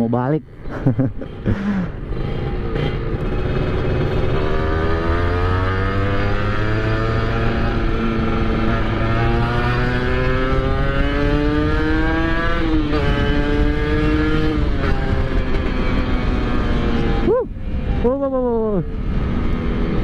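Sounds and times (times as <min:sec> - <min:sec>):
motorcycle engine accelerating: 0:00.6 - 0:20.0.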